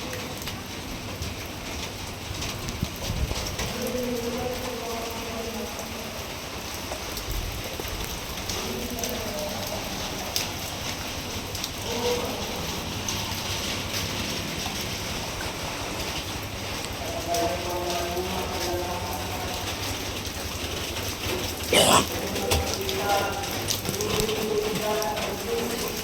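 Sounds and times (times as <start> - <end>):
rain drops on hard surfaces: 0.0 - 21.7, 22.6 - 26.0.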